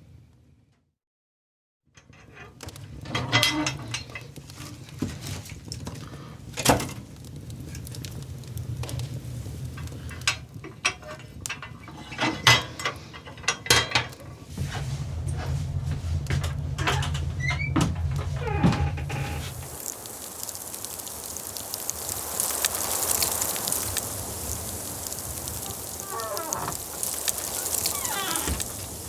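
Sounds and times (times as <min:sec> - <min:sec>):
steady low hum: 0:14.5 - 0:19.8.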